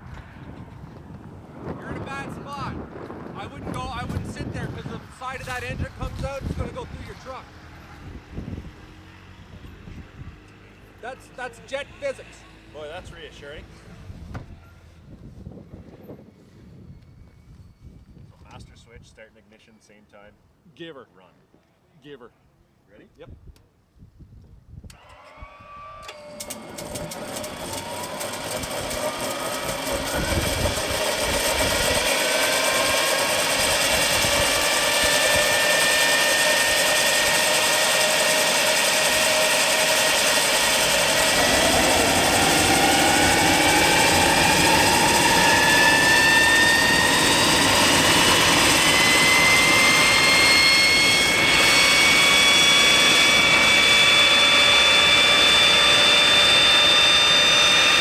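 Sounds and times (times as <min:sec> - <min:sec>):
jet turbine engine whine: 0:00.0 - 0:09.2, 0:24.9 - 0:58.0.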